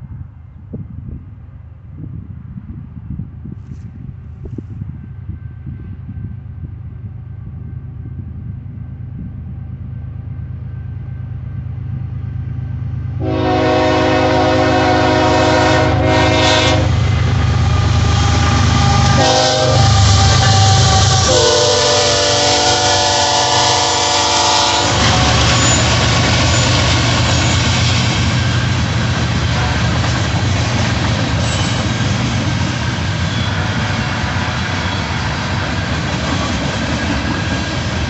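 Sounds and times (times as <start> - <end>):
diesel locomotive rumble: 0.0 - 38.0
train rushing by: 1.9 - 38.0
train air horn blasts: 13.2 - 27.6, 29.5 - 30.0.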